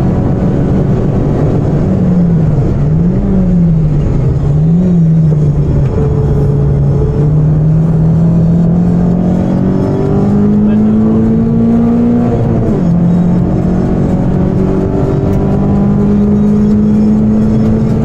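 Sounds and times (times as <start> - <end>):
car engine revving down: 0.0 - 18.0
road and tyre noise: 0.0 - 18.0.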